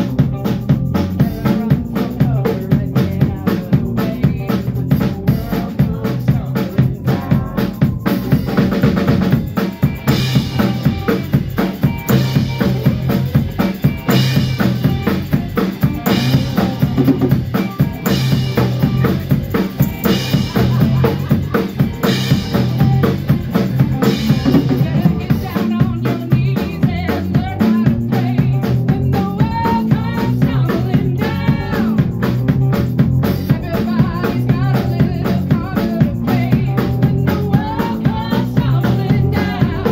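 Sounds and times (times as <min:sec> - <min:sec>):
drum kit beat: 0:00.0 - 0:39.9
sustained bass notes: 0:00.0 - 0:39.9
lead guitar with bending notes: 0:07.2 - 0:25.5.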